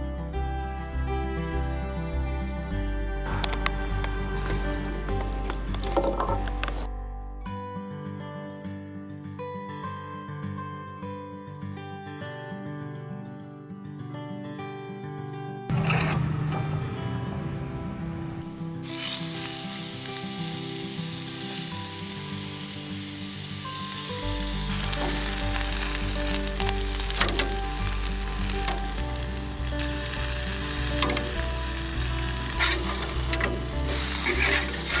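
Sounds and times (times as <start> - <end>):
background music: 0.0 - 35.0
wood fire crackling and hissing: 3.3 - 6.9, 18.5 - 35.0.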